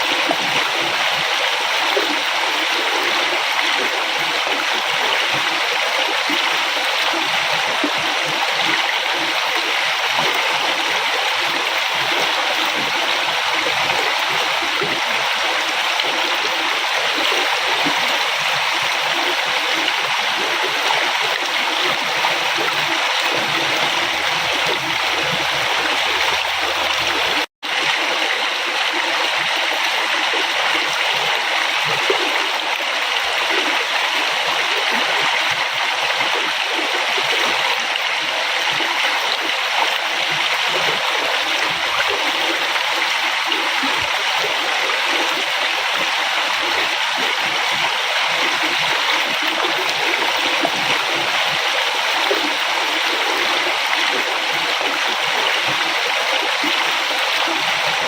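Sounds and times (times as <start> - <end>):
river water rushing: 20.6 - 27.5.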